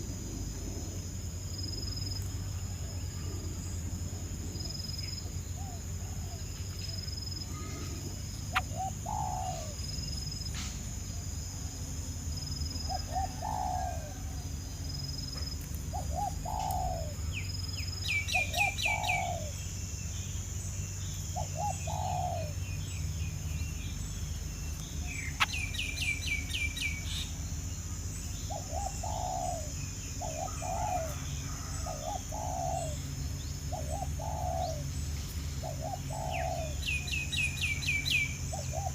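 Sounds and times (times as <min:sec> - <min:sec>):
high bird chirps: 0:24.7 - 0:27.4.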